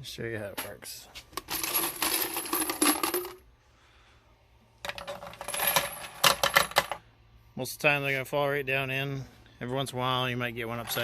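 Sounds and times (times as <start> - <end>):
brass cases clattering into hopper: 1.4 - 3.4.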